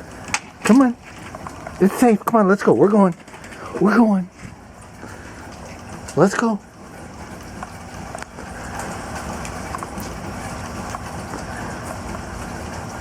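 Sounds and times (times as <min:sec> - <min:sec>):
light rain hissing: 0:00.0 - 0:13.0.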